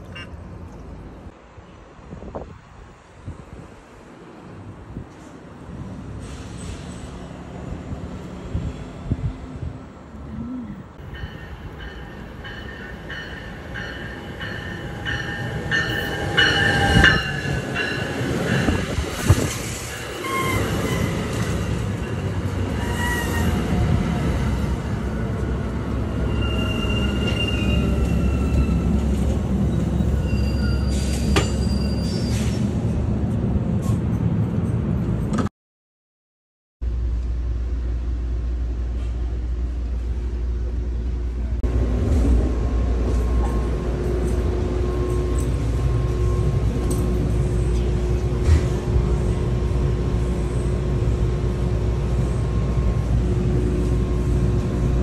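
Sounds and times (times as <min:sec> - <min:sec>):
train rumble: 0:00.4 - 0:35.5, 0:36.8 - 0:55.0
train cars clanking: 0:11.0 - 0:35.3, 0:41.7 - 0:55.0
wheel squeals: 0:26.2 - 0:29.0, 0:29.6 - 0:32.6.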